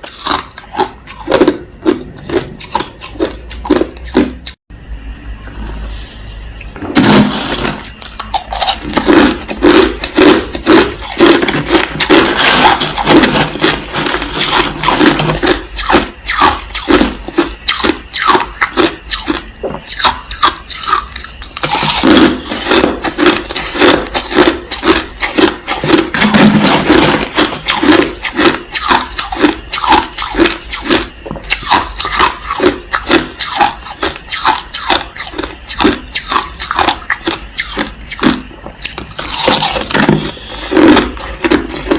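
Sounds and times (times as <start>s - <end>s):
crushed ice being chewed: 0.0s - 4.6s, 7.0s - 41.9s.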